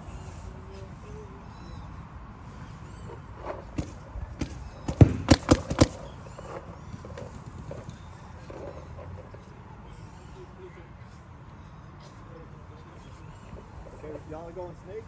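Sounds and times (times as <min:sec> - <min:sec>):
paintball markers firing: 0:03.4 - 0:08.8.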